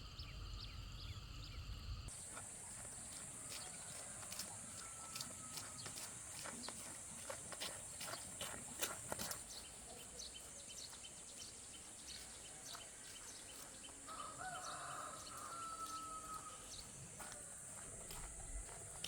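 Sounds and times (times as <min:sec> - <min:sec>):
distant rooster crowing: 0:02.8 - 0:06.7, 0:12.7 - 0:19.0.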